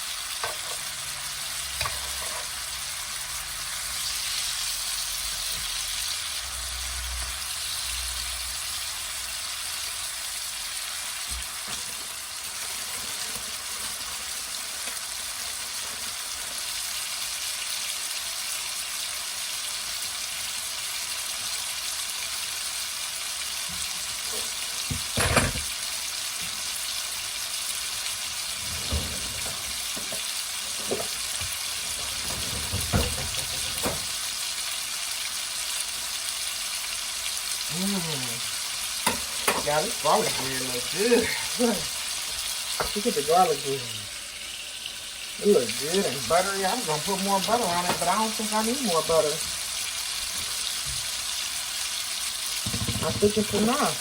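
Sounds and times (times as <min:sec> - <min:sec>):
food sizzling in a pan: 0:00.0 - 0:54.0
utensil knocking against pan: 0:52.6 - 0:53.8.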